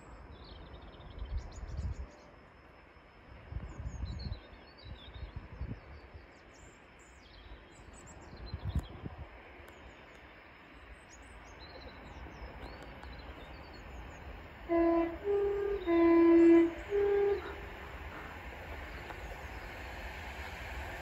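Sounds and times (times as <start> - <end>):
wind buffeting microphone: 3.4 - 6.3, 8.1 - 9.5, 11.4 - 21.0.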